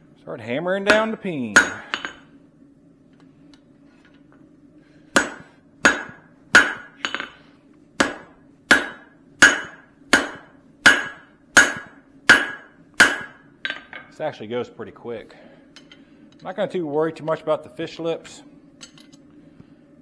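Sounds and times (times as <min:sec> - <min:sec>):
hammer ringing on anvil: 0:00.9 - 0:02.3, 0:05.2 - 0:07.4, 0:08.0 - 0:14.0.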